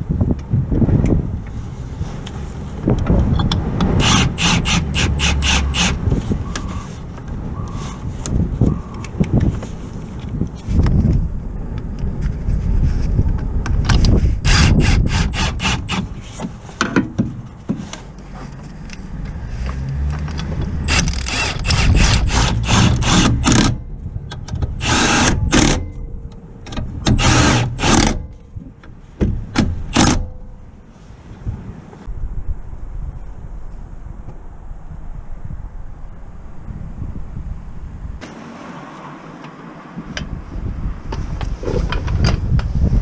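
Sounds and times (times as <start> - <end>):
bursts of tool noise: 3.8 - 6.9, 14.4 - 16.5, 20.4 - 23.8, 24.8 - 25.9, 27.0 - 28.3.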